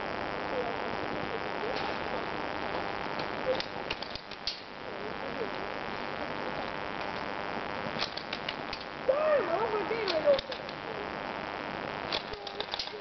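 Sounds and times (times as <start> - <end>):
faint distant voices: 0.1 - 3.9.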